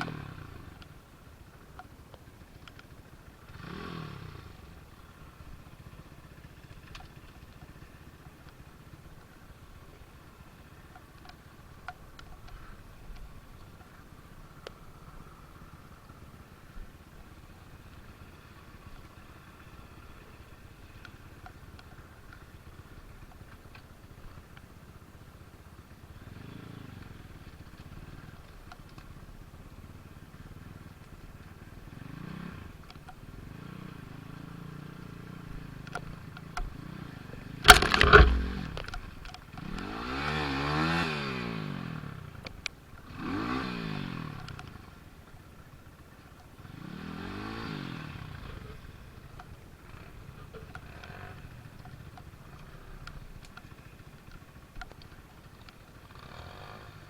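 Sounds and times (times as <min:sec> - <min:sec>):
motorcycle engine revving: 0:00.0 - 0:00.9, 0:02.6 - 0:08.1, 0:17.4 - 0:57.0
sharp clatter: 0:37.6 - 0:39.9.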